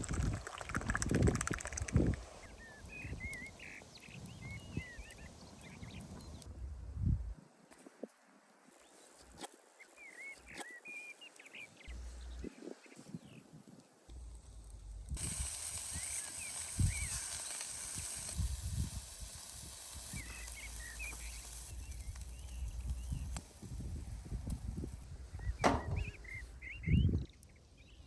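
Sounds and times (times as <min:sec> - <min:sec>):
sharp knock: 0:25.6 - 0:26.4
low rumbling: 0:25.6 - 0:26.6.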